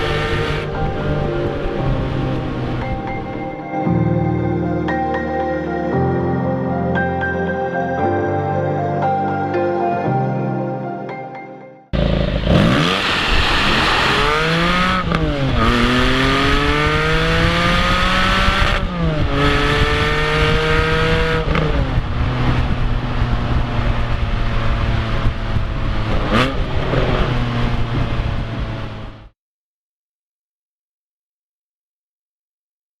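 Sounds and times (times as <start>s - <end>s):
car engine accelerating through gears: 12.0s - 29.2s.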